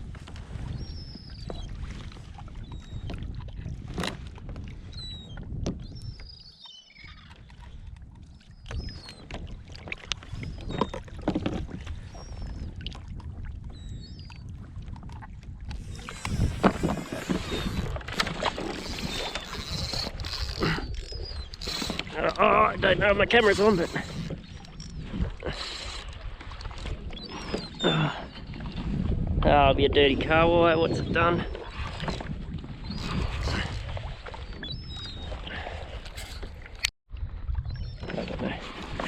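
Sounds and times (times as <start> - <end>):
water sloshing around kayak: 0.0 - 39.0.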